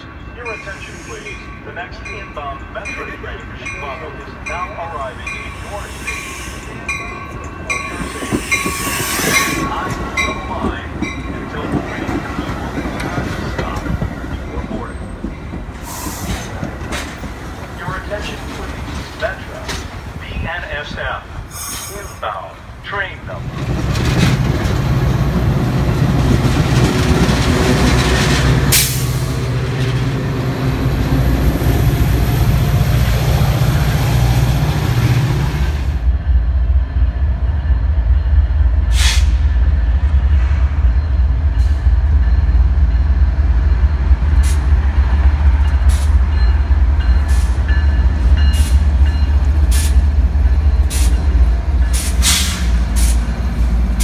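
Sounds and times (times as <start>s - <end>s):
commuter train running: 0.0s - 54.0s
freight train rumbling past: 0.0s - 54.0s
train wheels clicking: 4.5s - 20.1s, 41.4s - 54.0s.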